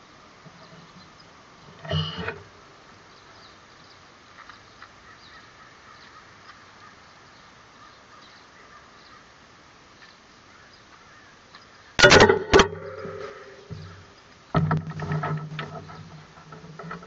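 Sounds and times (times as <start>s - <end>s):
faint bird chirps: 3.0s - 9.3s.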